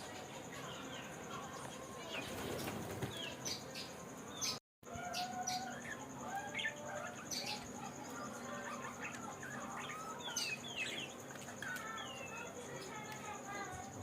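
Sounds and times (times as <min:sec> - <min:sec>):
budgerigars chirping and warbling: 0:02.1 - 0:12.5.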